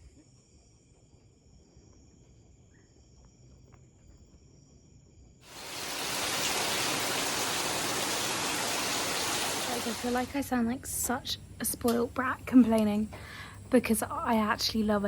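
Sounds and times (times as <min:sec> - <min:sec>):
insects chirring: 0:00.0 - 0:15.0
loud rushing hiss: 0:05.5 - 0:10.3.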